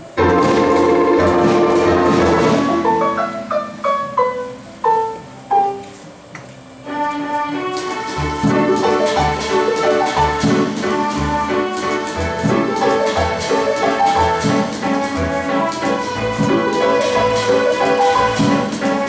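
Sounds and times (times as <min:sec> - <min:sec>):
mechanical orchestra machine playing: 0:00.0 - 0:19.0
single struck notes stepping down: 0:00.2 - 0:06.1.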